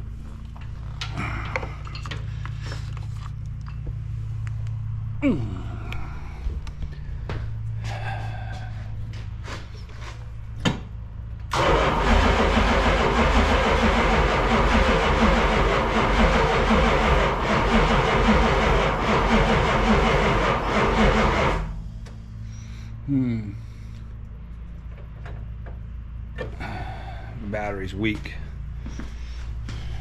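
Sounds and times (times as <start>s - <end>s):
starter cranking engine: 11.5s - 21.8s.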